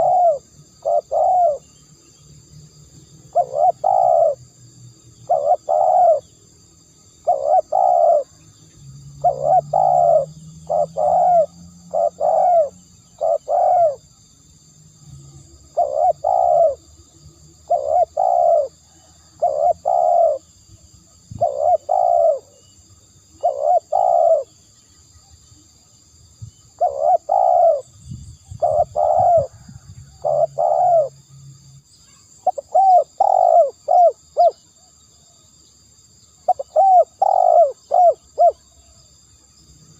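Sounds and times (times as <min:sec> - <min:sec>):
dove cooing: 0:00.0 - 0:01.6, 0:03.3 - 0:04.4, 0:05.3 - 0:06.3, 0:07.2 - 0:08.4, 0:09.2 - 0:14.0, 0:15.7 - 0:16.8, 0:17.6 - 0:20.5, 0:21.3 - 0:22.6, 0:23.4 - 0:24.6, 0:26.7 - 0:31.2, 0:32.4 - 0:34.6, 0:36.4 - 0:38.6.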